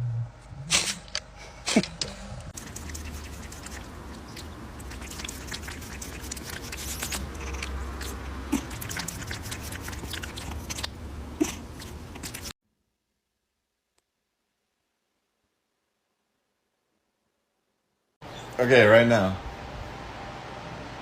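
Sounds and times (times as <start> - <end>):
low steady hum: 0.0 - 12.5
animal chewing with crunchy clicks: 0.8 - 12.5.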